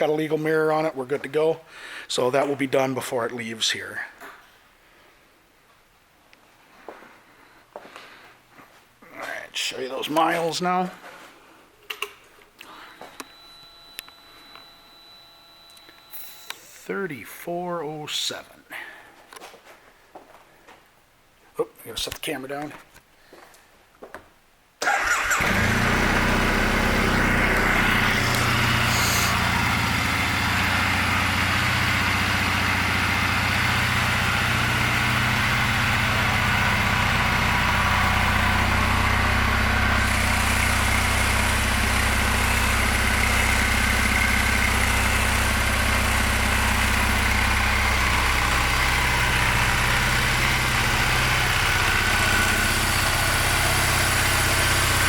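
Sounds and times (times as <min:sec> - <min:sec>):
motorcycle engine starting and idling: 0:24.8 - 0:55.0.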